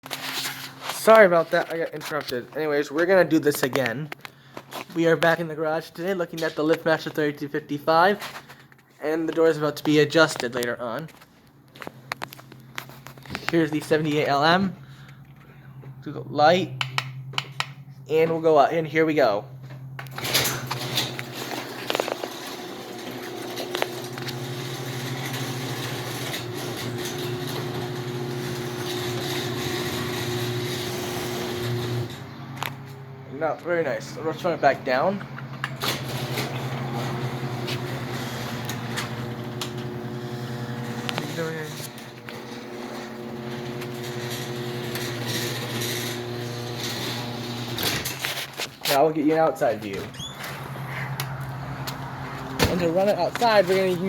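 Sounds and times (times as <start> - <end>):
sharp clicks: 16.8 - 17.8
garage door opener motor humming: 19.6 - 33.3, 34.0 - 48.4.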